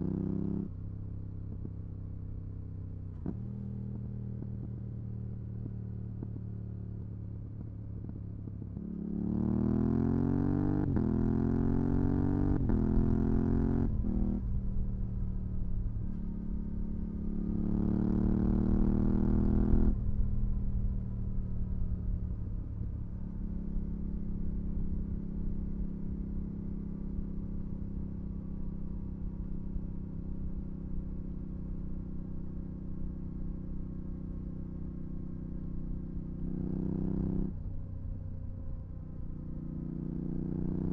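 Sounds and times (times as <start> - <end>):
motorcycle engine revving: 8.8 - 14.5, 16.9 - 20.0, 36.1 - 37.6, 39.6 - 40.9.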